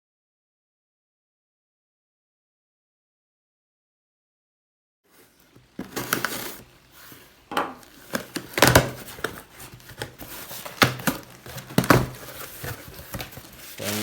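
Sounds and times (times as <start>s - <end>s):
objects being knocked about: 7.5s - 9.4s
rubbing: 8.9s - 14.0s.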